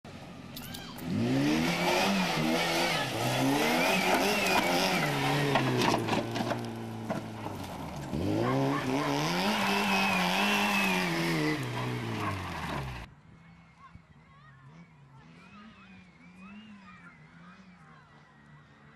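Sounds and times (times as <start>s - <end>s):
rally car engine revving: 1.0s - 13.1s.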